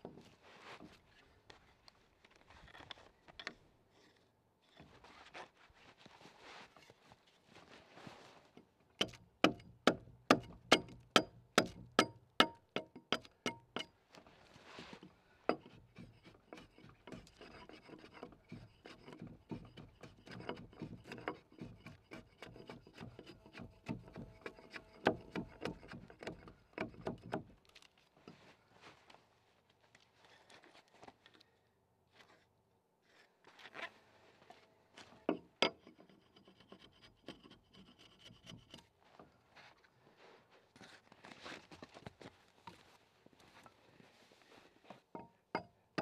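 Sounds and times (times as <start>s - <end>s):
axe chopping log: 9.0s - 11.9s.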